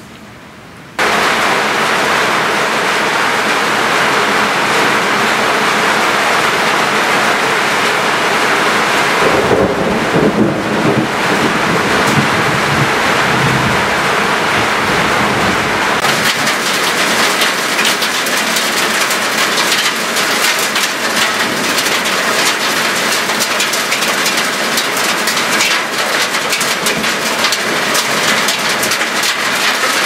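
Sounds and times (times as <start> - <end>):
heavy rain pouring: 0.9 - 30.0
thunder rumbling: 1.0 - 23.5.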